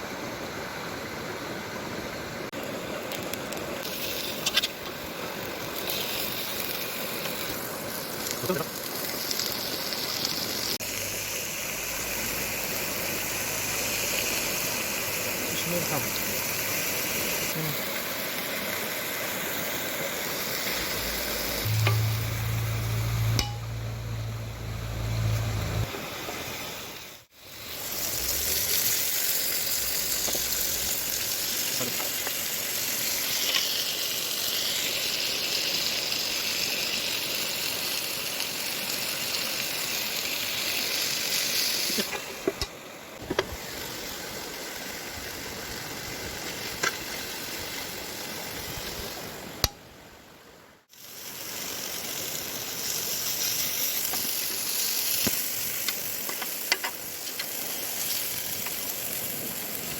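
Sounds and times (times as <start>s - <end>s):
food sizzling in a pan: 0.0s - 49.8s, 50.8s - 59.9s
low hum: 20.5s - 27.0s.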